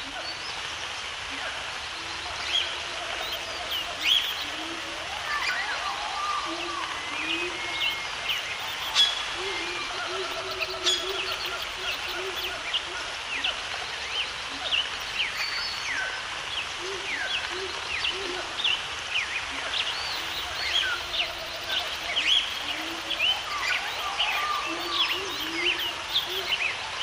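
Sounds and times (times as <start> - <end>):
background hiss: 0.0 - 27.0
birds chirping: 1.5 - 27.0
lower bird calls: 2.3 - 13.0, 19.8 - 26.8.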